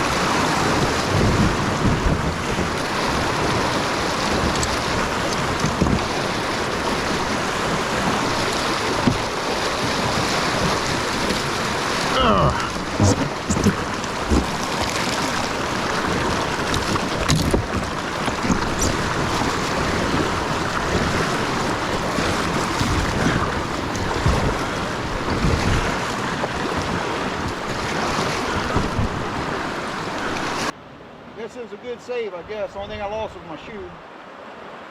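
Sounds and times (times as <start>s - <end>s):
wind buffeting microphone: 0.0s - 30.7s
rushing whitewater: 0.0s - 34.9s
knocks: 12.8s - 14.6s.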